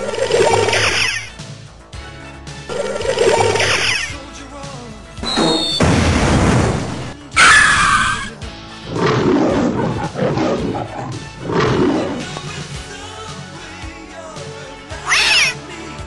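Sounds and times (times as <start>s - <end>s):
music: 0.0s - 16.0s
short high whistle: 5.2s - 5.8s
shrill cry: 7.4s - 8.4s, 15.0s - 15.6s.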